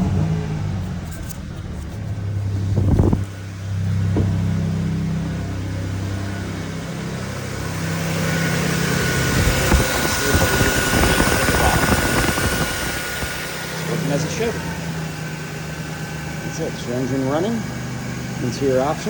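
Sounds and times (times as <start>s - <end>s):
car engine idling: 0.0s - 19.0s
high whine: 0.0s - 19.0s
fluttering rush: 7.1s - 14.7s.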